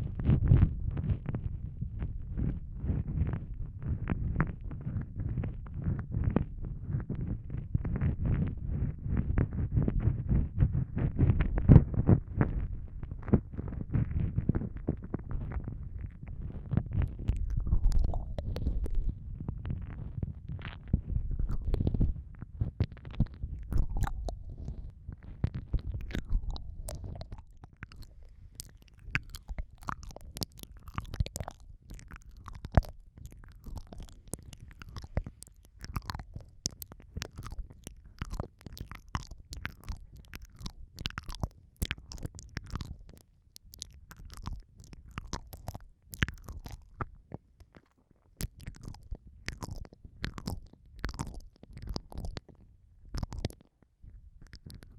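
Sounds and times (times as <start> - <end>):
low muffled mouth rumbling: 0.0 - 47.8, 48.4 - 54.9
wet mouth clicks and smacks: 11.8 - 54.9.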